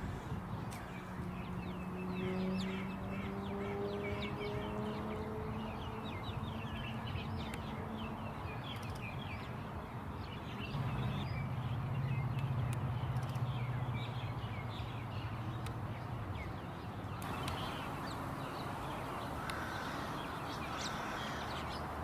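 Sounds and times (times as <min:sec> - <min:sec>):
small birds chirping: 0:00.1 - 0:22.0
low steady hum: 0:17.2 - 0:22.0.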